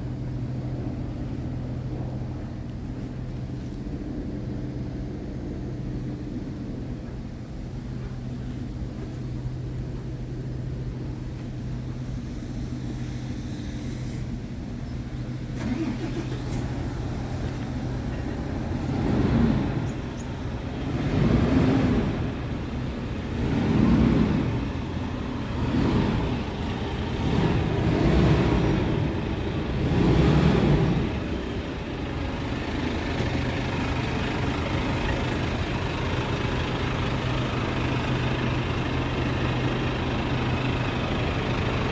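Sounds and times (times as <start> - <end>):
diesel truck engine idling: 0.0 - 41.9
truck engine revving: 15.2 - 41.9.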